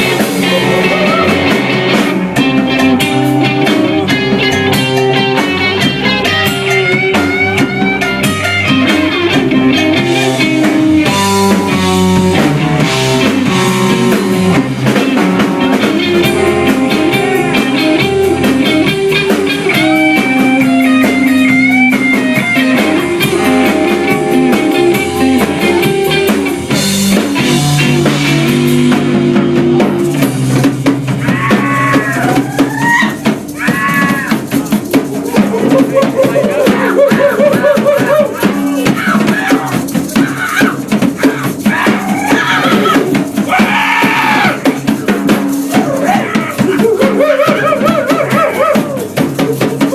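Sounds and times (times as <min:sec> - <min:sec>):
bass guitar: 0:00.0 - 0:49.9
drum kit: 0:00.0 - 0:49.9
electric guitar lines: 0:00.0 - 0:49.9.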